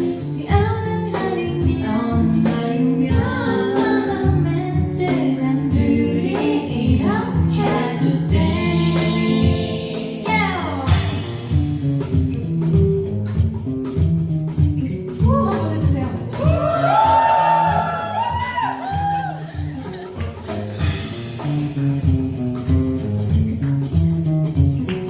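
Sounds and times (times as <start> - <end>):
bass: 0.0 - 25.0
drums: 0.0 - 25.0
live band playing pop song: 0.0 - 25.0
person singing: 0.4 - 11.2.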